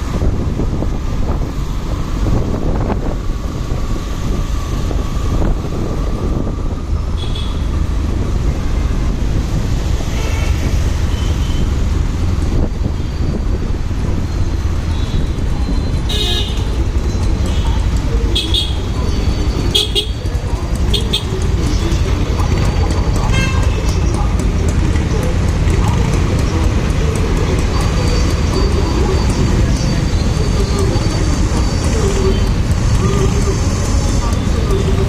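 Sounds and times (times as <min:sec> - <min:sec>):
motorbike engine and road rumble: 0:00.0 - 0:35.0
vehicle horns tooting: 0:07.2 - 0:07.7, 0:10.0 - 0:11.8, 0:14.8 - 0:21.8, 0:23.2 - 0:23.9.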